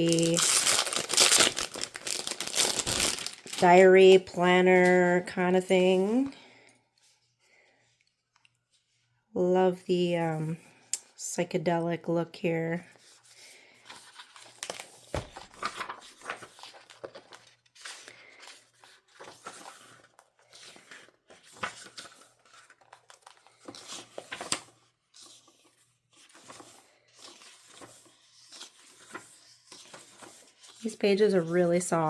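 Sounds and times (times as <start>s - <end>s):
packaging tearing and crinkling: 0.0s - 3.8s.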